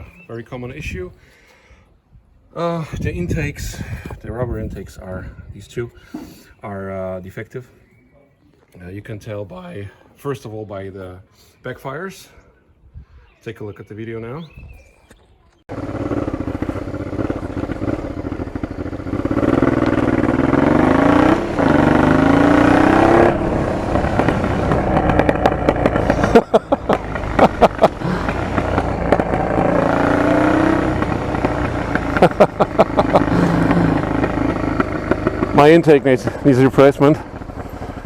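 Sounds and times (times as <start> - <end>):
motorcycle engine revving: 15.7 - 38.0
exhaust backfire pops: 16.3 - 36.5.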